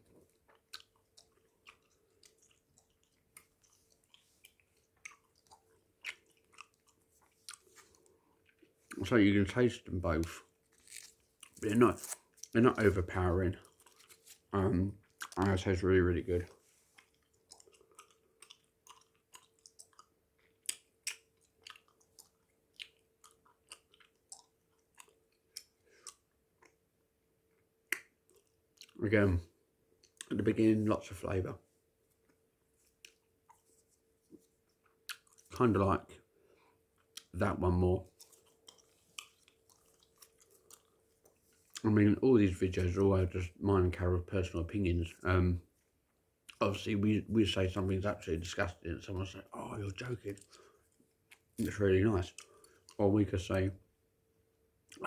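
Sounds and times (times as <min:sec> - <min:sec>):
faint steady hum: 0:00.0 - 0:55.0
chewing bubble gum: 0:00.2 - 0:09.1, 0:10.2 - 0:15.5, 0:16.4 - 0:26.8, 0:27.5 - 0:29.0, 0:32.2 - 0:35.6, 0:38.0 - 0:41.8, 0:49.5 - 0:53.0
gum chewing mouth smacks: 0:00.4 - 0:09.0, 0:17.0 - 0:26.8.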